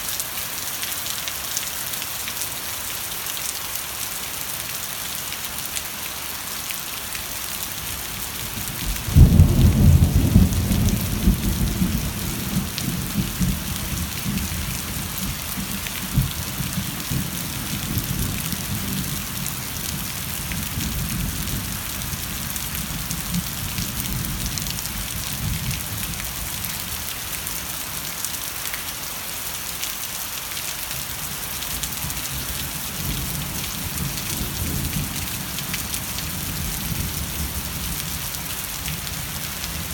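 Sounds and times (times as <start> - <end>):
thunderclap with rumble: 8.8 - 17.4.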